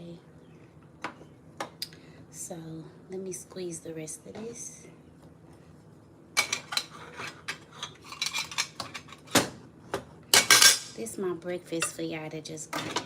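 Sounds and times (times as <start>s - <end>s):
kitchen utensils clicking: 6.4s - 9.4s, 10.4s - 11.0s.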